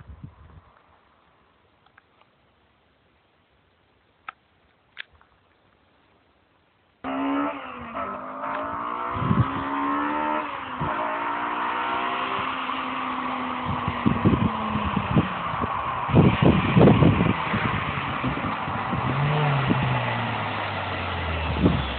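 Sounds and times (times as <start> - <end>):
car engine at high revs: 7.0 - 21.9.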